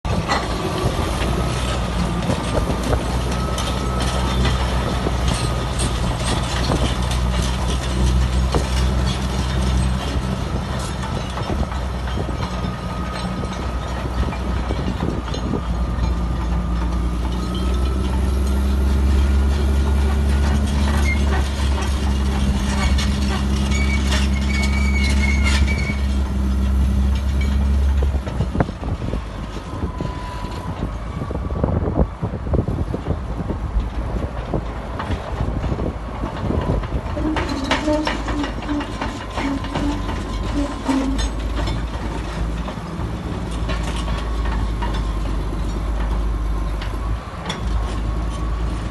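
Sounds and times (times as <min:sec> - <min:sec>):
heavy diesel machine engine: 0:00.0 - 0:48.9
metallic clanks and knocks: 0:00.1 - 0:29.6, 0:33.8 - 0:48.9
brief squeals: 0:23.6 - 0:26.2.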